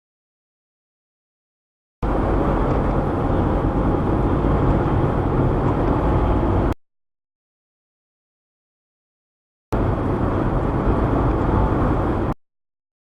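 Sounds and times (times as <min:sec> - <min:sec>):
car road and engine noise: 0:02.0 - 0:06.8, 0:09.7 - 0:12.4.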